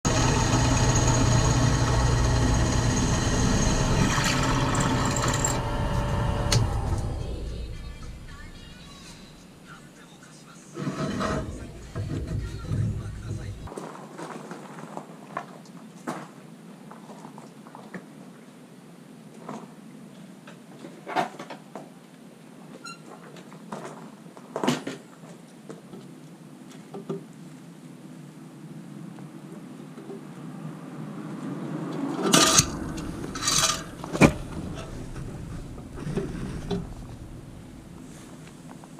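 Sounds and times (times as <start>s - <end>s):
low hum: 0.1s - 9.7s, 32.3s - 38.8s
brief squeak: 22.8s - 23.2s
objects knocking and clattering: 32.2s - 38.1s.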